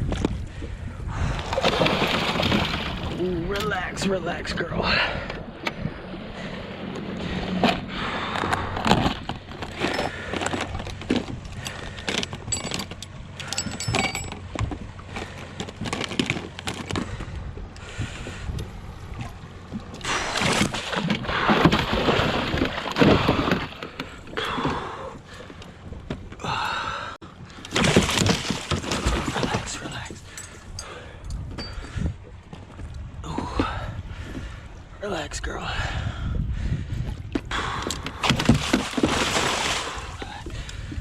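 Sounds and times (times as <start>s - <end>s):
fish splashing: 19.2s - 25.4s, 27.7s - 29.7s, 38.2s - 40.3s.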